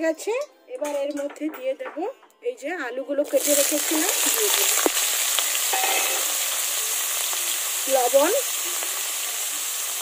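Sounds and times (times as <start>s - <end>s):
potatoes sizzling in hot oil: 3.2s - 10.0s.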